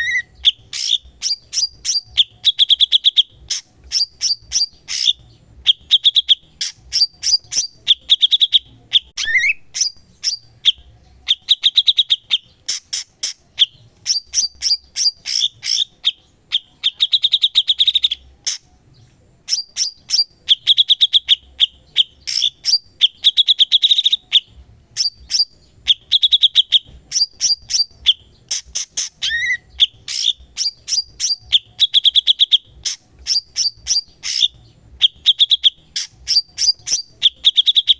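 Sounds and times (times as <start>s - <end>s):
bird trilling song: 0.0s - 37.9s
bird rising whistle: 9.2s - 9.8s.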